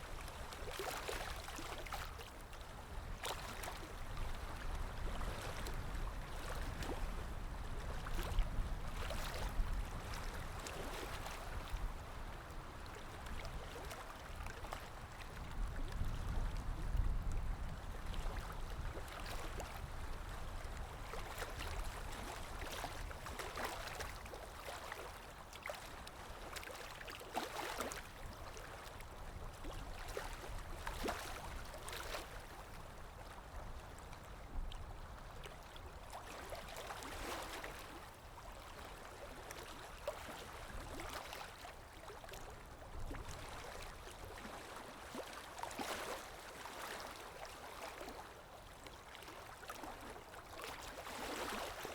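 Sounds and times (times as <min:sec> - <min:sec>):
low rumble of moving water: 0:00.0 - 0:51.9.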